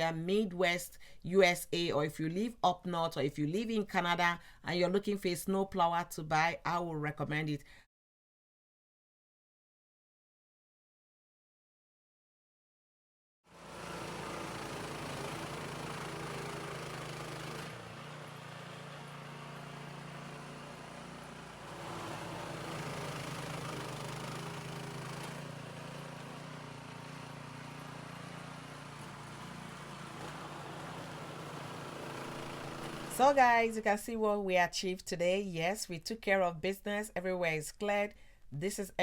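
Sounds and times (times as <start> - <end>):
snowblower engine running: 13.5 - 33.3.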